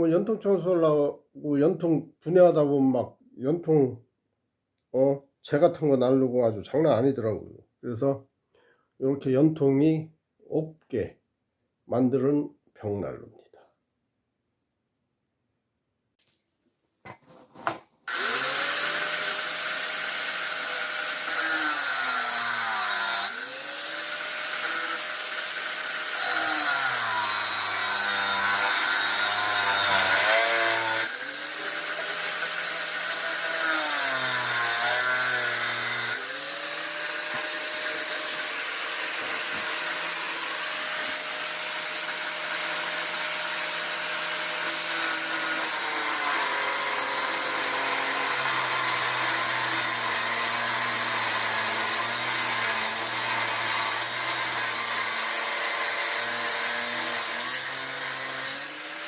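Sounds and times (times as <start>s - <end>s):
electric power tool whining: 17.6s - 59.0s.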